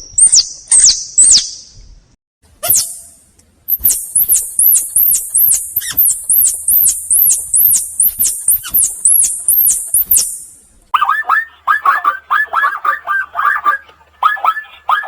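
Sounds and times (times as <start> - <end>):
small animal squeaking chirps: 0.0 - 1.6, 2.6 - 3.0, 3.7 - 10.4.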